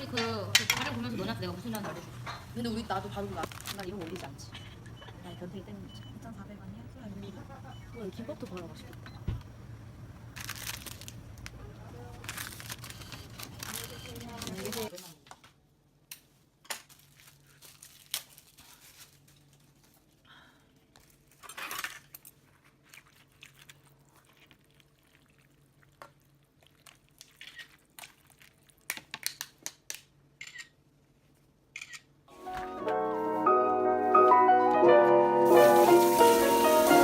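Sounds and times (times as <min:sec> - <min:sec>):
plastic wrapping crinkling: 0:03.1 - 0:04.4, 0:10.3 - 0:15.1, 0:16.8 - 0:20.2.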